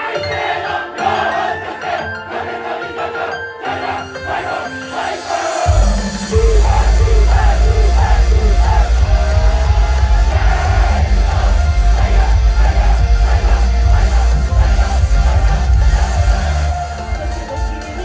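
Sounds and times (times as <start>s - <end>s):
person singing or shouting: 5.7s - 12.8s.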